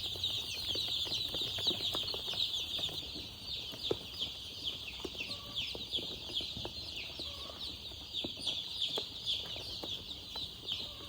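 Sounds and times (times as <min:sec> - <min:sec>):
baby chicks peeping: 0:00.0 - 0:11.0.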